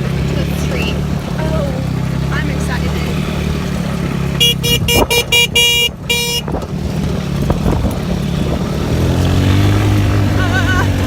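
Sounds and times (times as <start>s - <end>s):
vehicle motor running: 0.0s - 11.0s
vehicle horn tooting: 4.3s - 6.6s.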